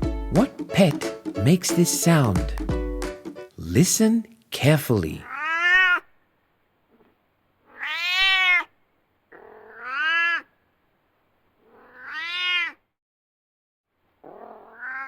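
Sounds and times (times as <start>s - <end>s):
cat meowing: 5.2s - 6.1s, 7.0s - 10.5s, 11.6s - 12.8s, 14.2s - 15.0s.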